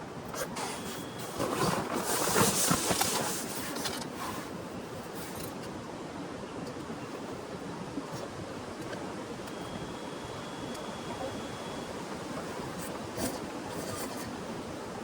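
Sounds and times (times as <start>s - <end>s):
close rustling and crackling: 0.2s - 5.7s.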